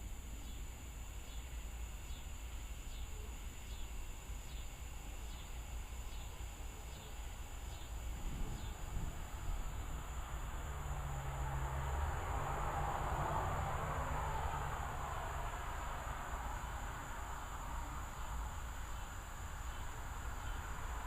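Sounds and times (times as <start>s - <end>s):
high insect drone: 0.0s - 21.0s
insects chirping: 0.0s - 21.0s
low steady rumble: 0.0s - 21.0s.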